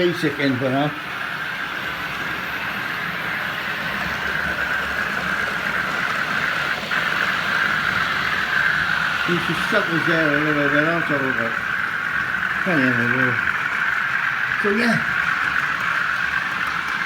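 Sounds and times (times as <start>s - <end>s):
model trains running on track: 0.0s - 17.0s.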